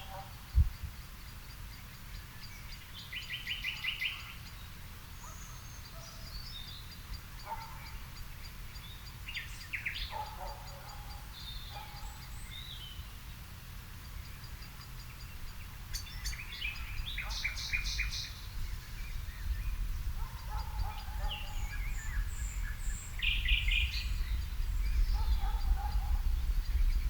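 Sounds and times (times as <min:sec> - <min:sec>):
birds calling and singing: 0:00.0 - 0:27.0.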